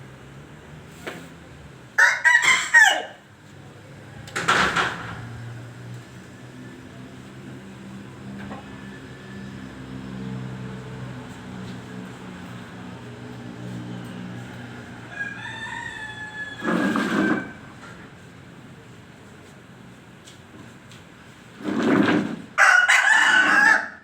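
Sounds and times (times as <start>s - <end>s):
rooster crowing: 2.0s - 3.2s, 14.1s - 17.8s, 22.6s - 24.0s.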